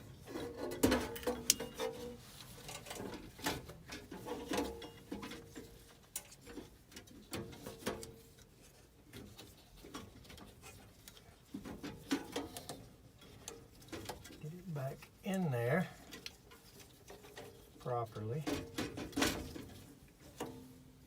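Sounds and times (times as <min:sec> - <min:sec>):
metal burners clinking and knocking: 0:00.0 - 0:08.2, 0:11.5 - 0:14.6, 0:15.9 - 0:21.0.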